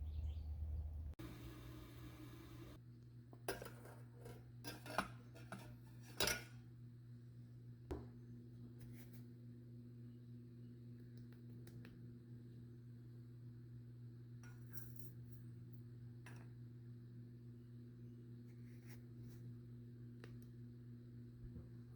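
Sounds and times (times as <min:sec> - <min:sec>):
low electrical hum: 0:00.0 - 0:21.9
dishes and utensils clinking: 0:03.5 - 0:06.5.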